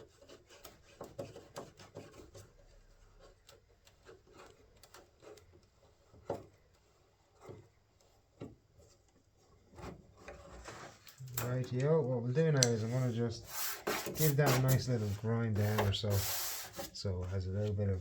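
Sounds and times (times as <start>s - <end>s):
rubbing: 0.0s - 11.2s, 12.6s - 18.0s
light clicks and taps: 0.2s - 12.9s.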